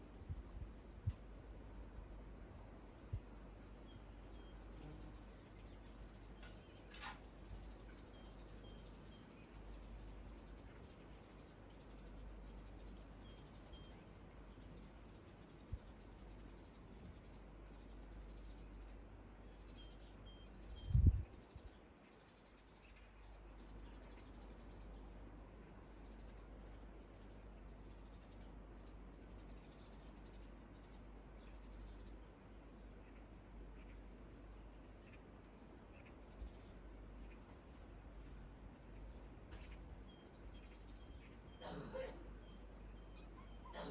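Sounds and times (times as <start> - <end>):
crickets trilling: 0.0 - 43.9
soft bird chirps: 3.5 - 25.1, 35.8 - 43.9.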